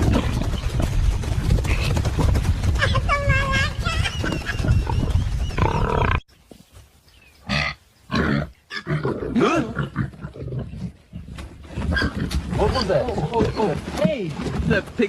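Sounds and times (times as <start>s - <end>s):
animal growls and grunts: 0.0s - 0.8s, 3.8s - 6.2s, 7.5s - 15.0s.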